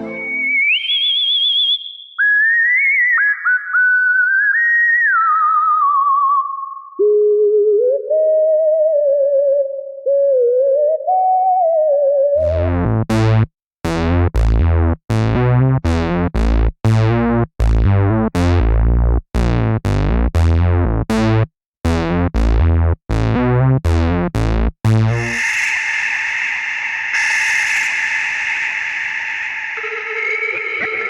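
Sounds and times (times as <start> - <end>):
punchy synthesizer notes with bass: 12.5 - 31.0
synthesizer lead gliding: 25.0 - 31.0.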